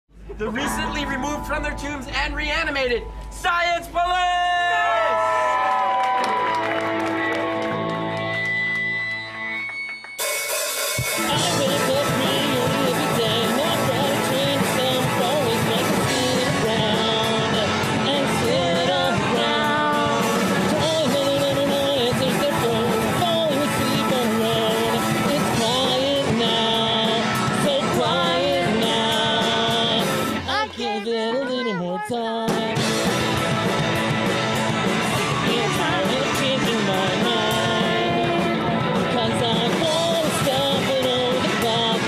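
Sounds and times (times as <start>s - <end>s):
live rock band playing: 0.2s - 4.0s, 6.2s - 42.0s
wavering lead melody: 0.4s - 4.3s
drum and cymbal hits: 9.8s - 30.6s, 32.4s - 42.0s.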